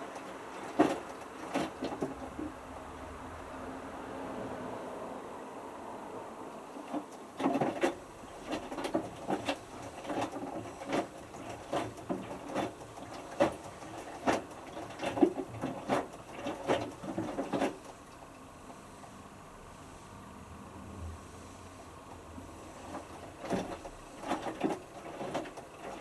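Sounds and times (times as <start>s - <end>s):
water splashes: 0.0s - 2.5s, 21.9s - 26.0s
washing machine drum tumbling: 0.0s - 2.6s, 6.8s - 18.0s, 21.9s - 26.0s
washing machine hum: 0.0s - 26.0s.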